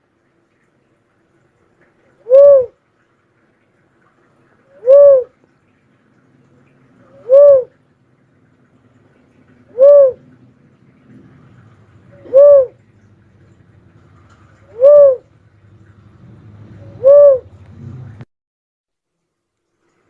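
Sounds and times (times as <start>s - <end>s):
dove cooing: 2.2s - 2.8s, 4.7s - 5.4s, 7.0s - 7.8s, 9.6s - 10.4s, 11.0s - 13.6s, 14.2s - 15.4s, 16.7s - 17.6s.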